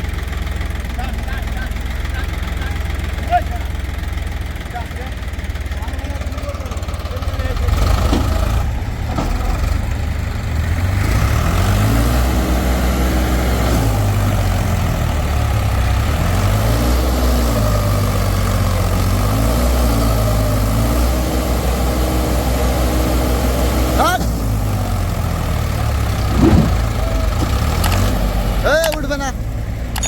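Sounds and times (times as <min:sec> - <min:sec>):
diesel tractor engine revving: 0:00.0 - 0:30.0.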